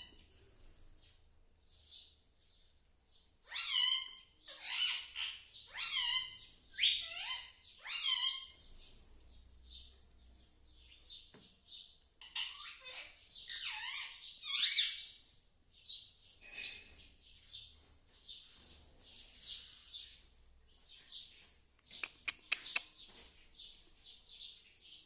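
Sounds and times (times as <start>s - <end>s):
parakeet squawking: 3.5s - 8.6s.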